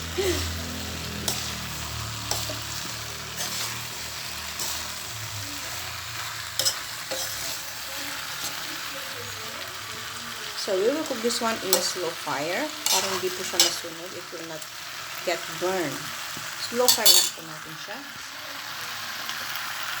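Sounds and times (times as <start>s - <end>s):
food sizzling in a pan: 0.0s - 20.0s
spoon scraping a pan: 0.3s - 8.9s, 11.0s - 13.9s, 16.3s - 17.4s.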